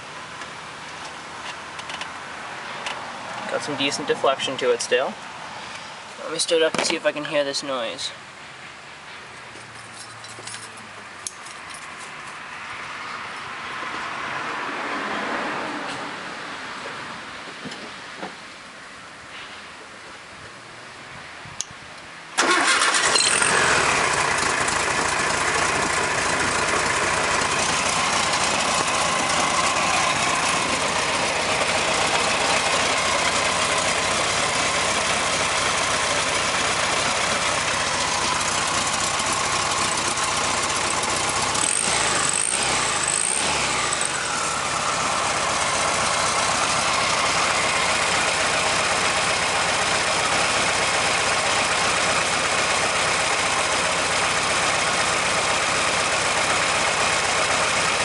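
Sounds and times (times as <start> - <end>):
car engine starting and idling: 22.4 - 58.0.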